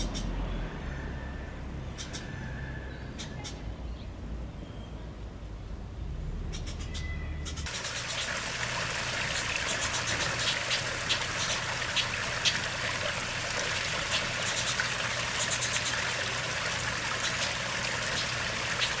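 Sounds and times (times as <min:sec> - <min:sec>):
high bird chirps: 0:06.5 - 0:08.0
water trickling: 0:07.7 - 0:19.0.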